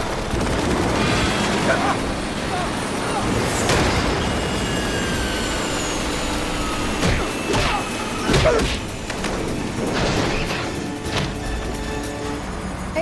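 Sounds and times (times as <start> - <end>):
helicopter roar: 0.0 - 13.0.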